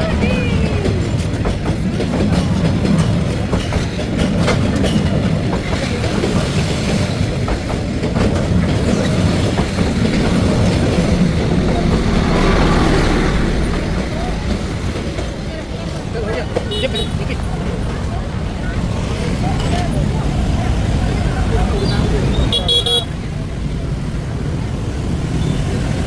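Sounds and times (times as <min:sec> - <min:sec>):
train rumbling past: 0:00.0 - 0:26.0
wheels clattering over rail joints: 0:00.0 - 0:26.0.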